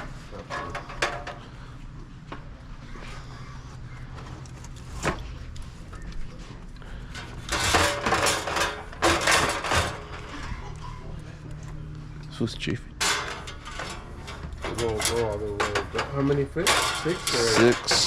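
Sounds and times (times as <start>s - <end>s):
bottles clattering: 7.3s - 10.6s.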